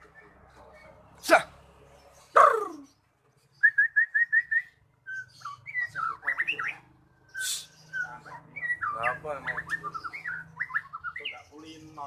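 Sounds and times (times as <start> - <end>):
bird singing whistled notes: 2.6 - 12.0.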